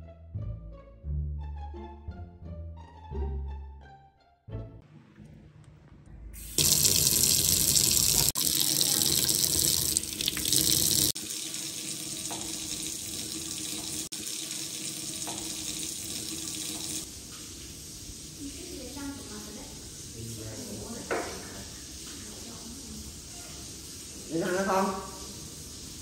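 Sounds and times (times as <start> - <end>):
tap water streaming into sink: 6.4 - 17.7, 21.0 - 22.4.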